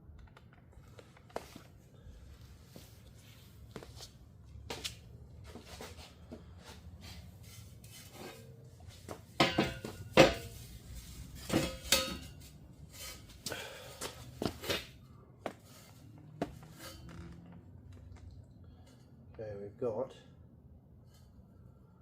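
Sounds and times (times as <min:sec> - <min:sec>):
metal exhaust pipes clanking: 0:08.0 - 0:15.0.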